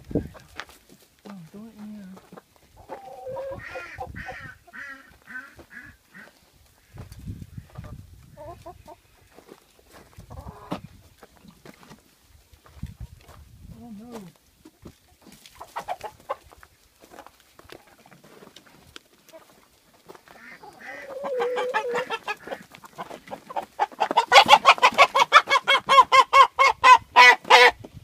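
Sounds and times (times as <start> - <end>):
chicken squawking: 2.8 - 6.3, 20.3 - 27.8.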